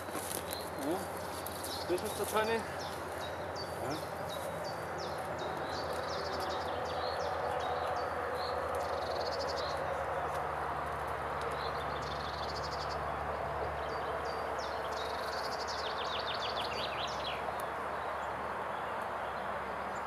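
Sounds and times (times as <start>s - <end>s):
songbirds trilling and chirping: 0.0s - 20.0s.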